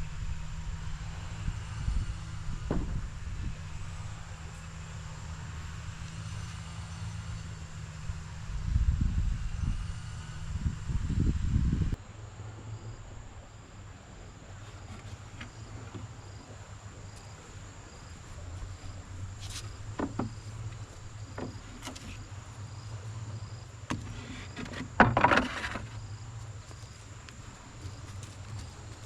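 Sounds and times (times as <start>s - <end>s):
steady low hum: 0.0s - 29.0s
faint insect chirping: 0.8s - 29.0s
knocks: 2.7s - 3.0s, 19.9s - 20.4s.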